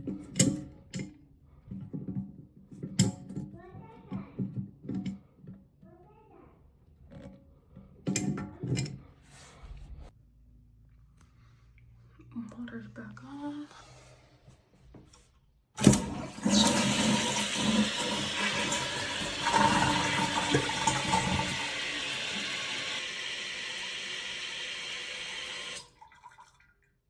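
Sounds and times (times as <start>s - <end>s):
toilet handle click: 15.8s - 23.0s
toilet water rushing: 15.8s - 26.4s.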